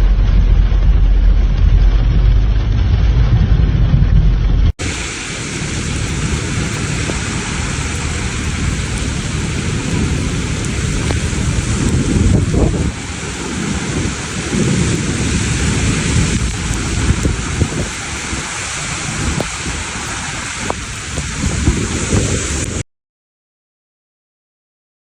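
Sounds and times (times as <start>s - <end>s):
loud low rumble: 0.0s - 22.8s
heavy rain hissing: 4.8s - 22.8s.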